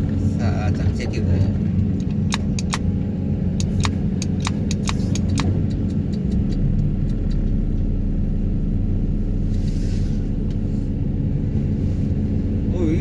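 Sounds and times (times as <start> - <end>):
excavator engine and hydraulics humming: 0.0 - 13.0
sharp clicks: 2.0 - 2.9, 3.6 - 7.6.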